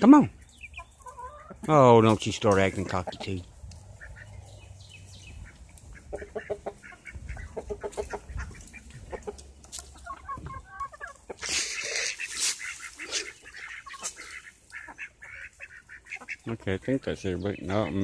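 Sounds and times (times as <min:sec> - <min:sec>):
chickens clucking: 0:00.0 - 0:18.0
ducks quacking: 0:00.0 - 0:18.0
rustling rush: 0:11.4 - 0:14.4.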